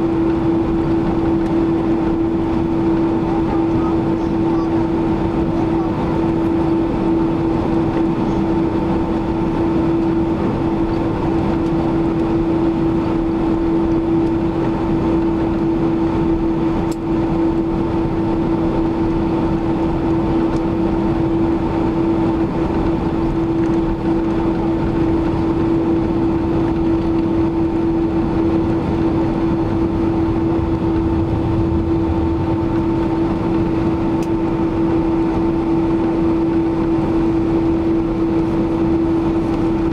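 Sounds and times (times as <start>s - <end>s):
jet engines droning: 0.0s - 39.9s
strong steady hum: 0.0s - 39.9s
rushing air: 28.8s - 35.3s.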